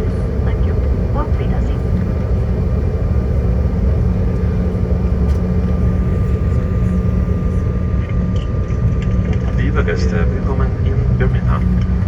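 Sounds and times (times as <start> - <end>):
airliner cabin rumble: 0.0 - 12.0
faint steady whine: 0.0 - 12.0.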